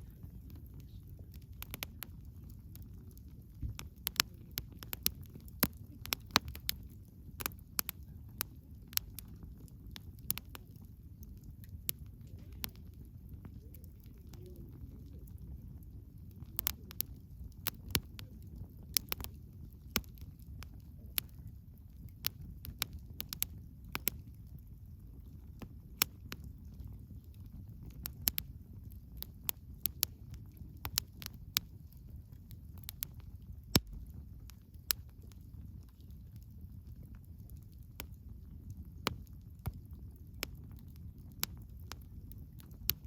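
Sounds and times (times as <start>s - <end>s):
campfire crackling: 0.0s - 43.0s
low rumble of flames: 0.0s - 43.0s
sharp pops and snaps: 0.5s - 8.0s, 8.9s - 9.4s, 10.0s - 12.9s, 16.4s - 18.3s, 18.9s - 21.4s, 22.1s - 24.2s, 25.6s - 28.5s, 29.2s - 31.7s, 32.4s - 35.2s, 39.0s - 43.0s.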